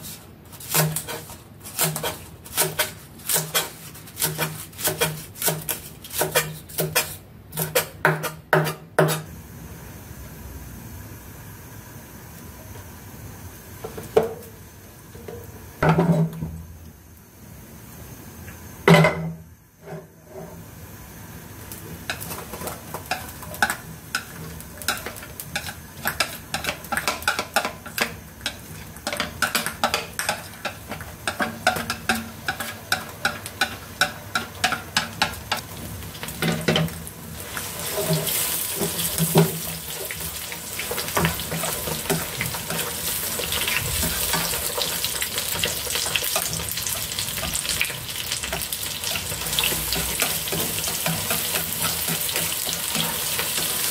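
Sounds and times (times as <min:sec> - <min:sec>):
oil crackling and sizzling: 0:20.5 - 0:53.9.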